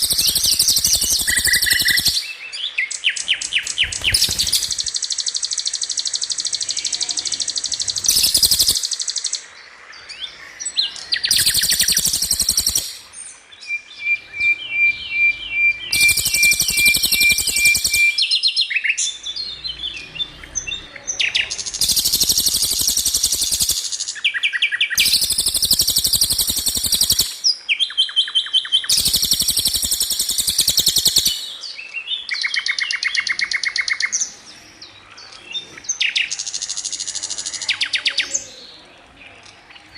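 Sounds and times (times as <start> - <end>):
bird rattling trills: 0.0 - 2.4, 3.4 - 6.4, 7.7 - 9.2, 11.3 - 13.1, 15.9 - 18.3, 21.7 - 24.2, 25.0 - 27.5, 28.9 - 31.6
bird piping notes: 0.0 - 9.4, 10.2 - 34.1.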